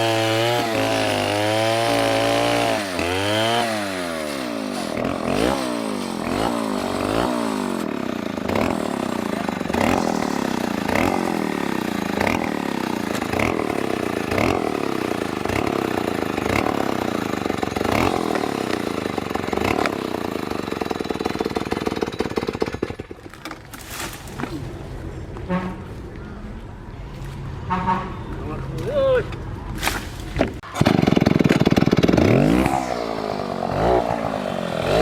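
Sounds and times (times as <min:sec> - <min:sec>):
chainsaw engine revving: 0:00.0 - 0:23.1, 0:30.6 - 0:35.0.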